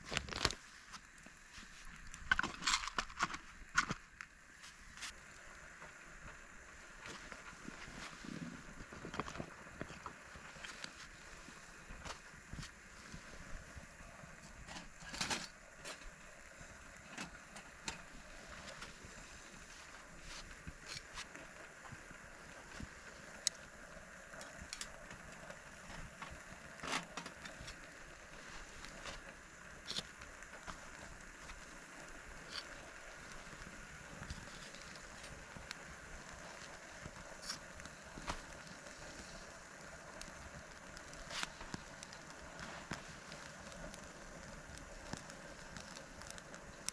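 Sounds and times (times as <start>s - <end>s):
low hiss: 0.0s - 46.9s
wood fire crackling: 0.0s - 46.9s
sharp pops from fire: 40.1s - 46.9s.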